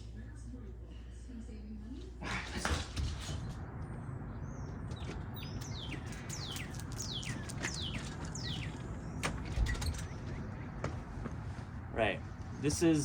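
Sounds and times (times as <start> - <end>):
low background rumble: 0.0 - 13.0
bird whistling calls: 4.6 - 10.8.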